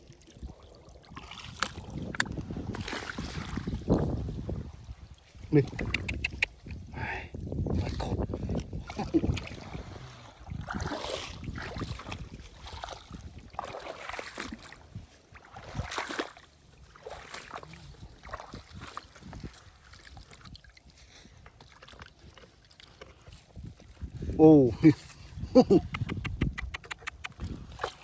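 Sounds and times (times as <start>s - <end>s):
wind rumbling on microphone: 0.0s - 16.0s, 16.6s - 21.5s, 23.0s - 28.0s
water sloshing and splashing: 0.0s - 25.5s, 27.1s - 28.0s.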